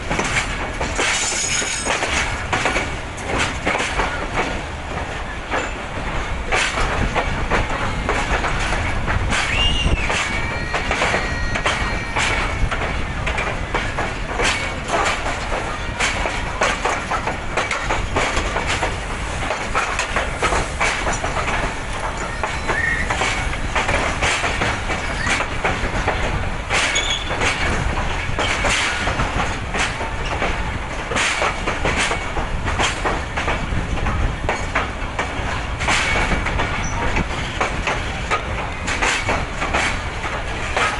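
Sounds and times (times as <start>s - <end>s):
train wheels rumbling on track: 0.0s - 40.9s
wheels clicking over rail joints: 0.0s - 40.9s
high wheel squeals: 9.5s - 12.8s, 22.2s - 23.2s, 26.9s - 27.3s.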